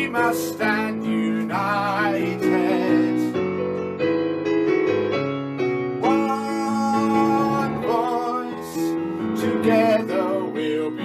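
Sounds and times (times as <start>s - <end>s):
man singing: 0.0s - 3.4s, 6.0s - 11.0s
instrumental accompaniment chords: 0.0s - 11.0s.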